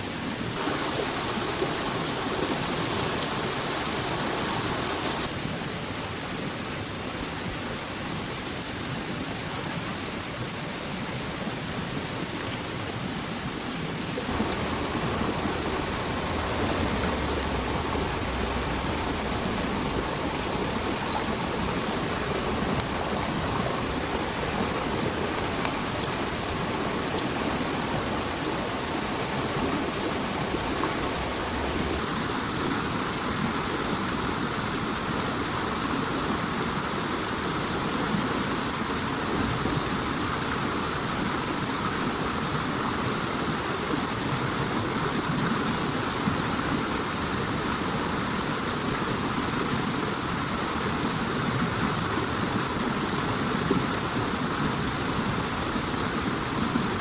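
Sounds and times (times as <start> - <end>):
heavy rain pouring: 0.6 - 5.3, 14.3 - 33.4.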